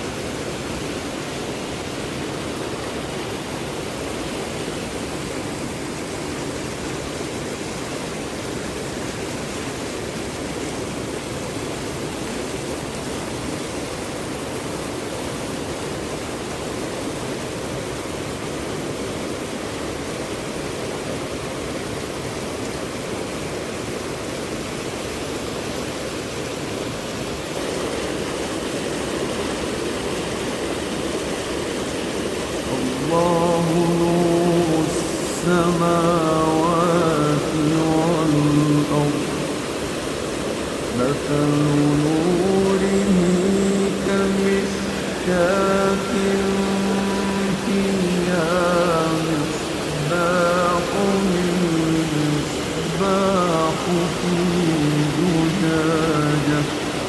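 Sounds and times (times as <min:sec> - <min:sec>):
rushing flowing water: 0:00.0 - 0:57.0.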